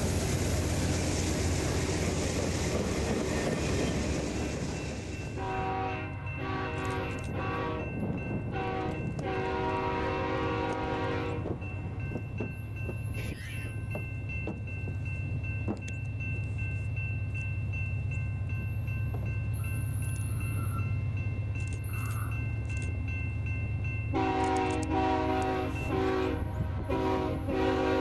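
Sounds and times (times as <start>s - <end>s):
diesel locomotive engine rumble: 0.0s - 28.0s
train air horn blasts: 5.4s - 11.6s, 24.1s - 28.0s.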